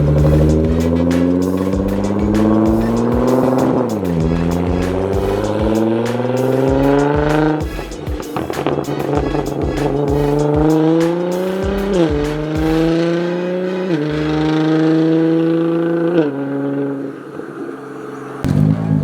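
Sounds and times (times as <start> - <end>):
exhaust pops crackling: 0.0 - 13.0, 18.4 - 19.0
car engine accelerating: 0.0 - 19.0.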